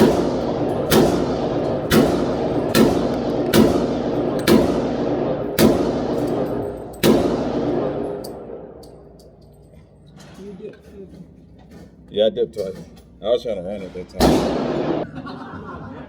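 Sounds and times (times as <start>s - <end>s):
pistol shots echoing: 0.0s - 9.2s, 14.2s - 15.0s.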